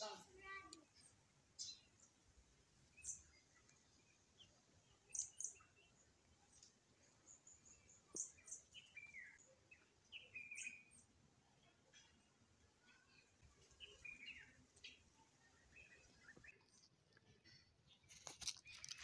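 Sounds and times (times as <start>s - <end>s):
faint bird chirps: 2.9s - 19.0s
lower falling bird calls: 13.6s - 16.7s.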